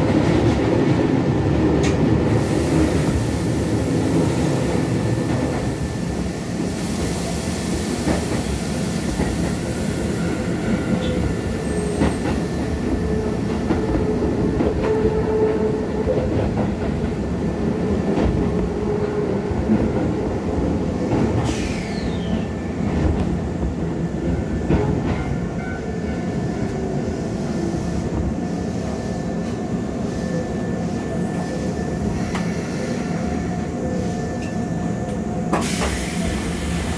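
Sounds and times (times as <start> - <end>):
train wheels rumbling on rail: 0.0 - 36.9
rail joint clicks: 1.8 - 2.1, 34.3 - 36.9.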